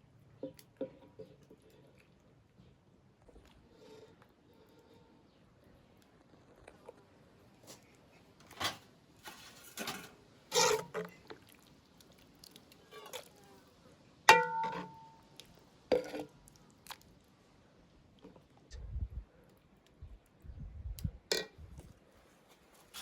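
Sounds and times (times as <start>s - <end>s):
kitchenware clinking and scraping: 8.4s - 11.2s, 14.3s - 15.1s
struck pot ringing: 14.3s - 15.2s.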